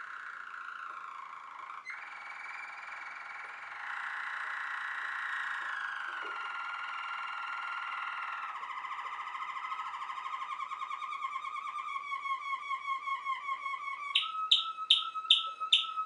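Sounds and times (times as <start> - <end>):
canary singing trills: 14.0 - 16.0.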